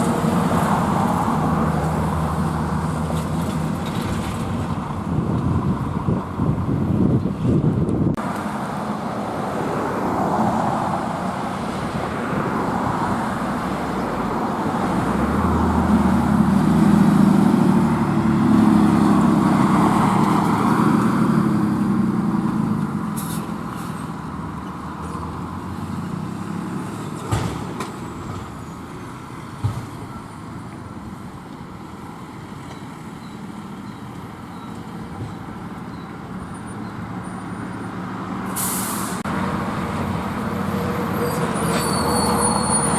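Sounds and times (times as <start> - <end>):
road traffic: 0.0 - 42.9
truck driving past: 8.2 - 30.9, 31.8 - 42.9.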